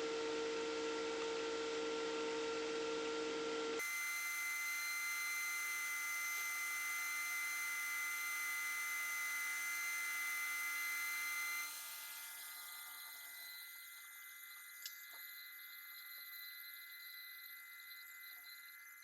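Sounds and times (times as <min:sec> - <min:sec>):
rotary tool high whine: 0:00.1 - 0:19.0.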